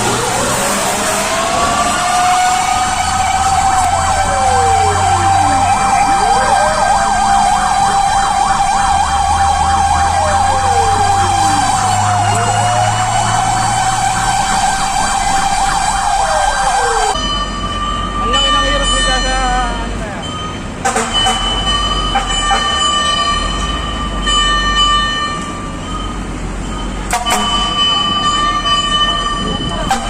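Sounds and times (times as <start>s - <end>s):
warbling siren: 0.0s - 18.1s
low sweeping siren: 0.0s - 19.7s.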